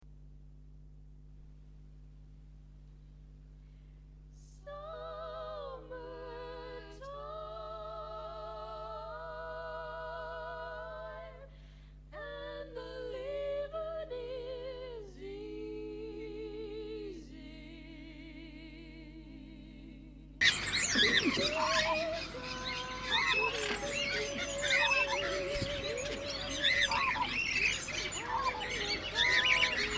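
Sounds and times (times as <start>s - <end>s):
steady low hum: 0.0s - 29.9s
high voice singing: 20.4s - 29.9s.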